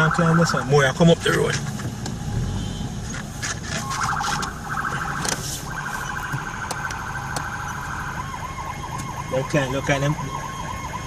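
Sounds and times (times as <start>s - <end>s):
police siren warbling: 0.0s - 0.9s, 3.7s - 11.0s
car engine rumble: 0.0s - 11.0s.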